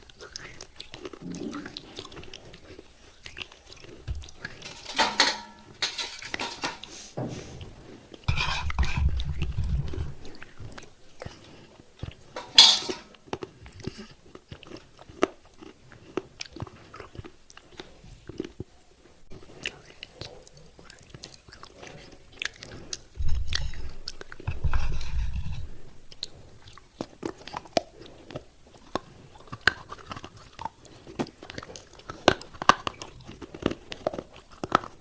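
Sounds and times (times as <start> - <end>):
gritty chewing clicks: 0.0 - 4.7, 13.2 - 18.7, 19.3 - 35.0.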